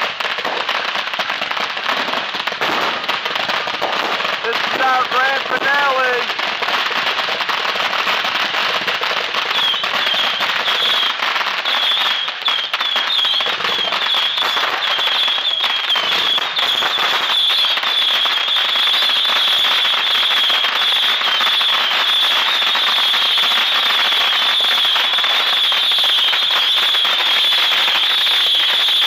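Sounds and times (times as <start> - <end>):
fireworks crackling: 0.0 - 29.0
high wavering whistle: 9.5 - 18.5.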